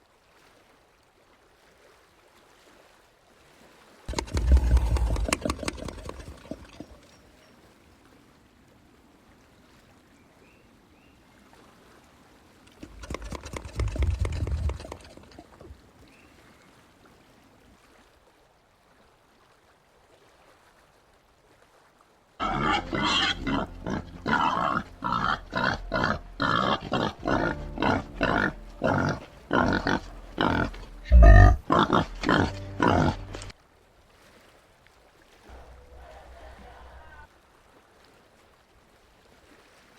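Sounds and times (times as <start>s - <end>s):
peccary grunting calls: 4.1s - 7.0s, 22.4s - 33.5s.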